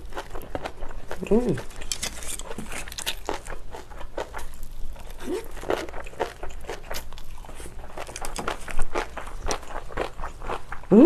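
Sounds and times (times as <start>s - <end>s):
crunching and wet chewing: 0.0s - 10.9s.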